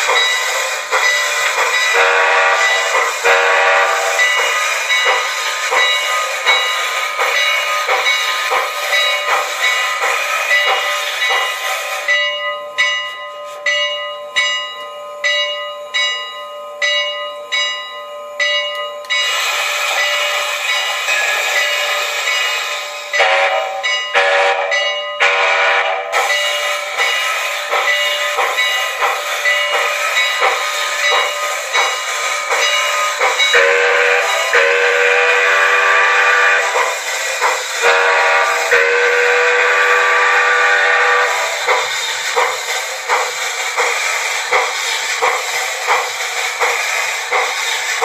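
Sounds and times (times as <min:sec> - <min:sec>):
model steam locomotive chuffing: 0:00.0 - 0:14.6, 0:18.3 - 0:48.0
train whistle: 0:01.9 - 0:04.3, 0:23.0 - 0:26.2, 0:33.5 - 0:37.0, 0:37.7 - 0:41.8.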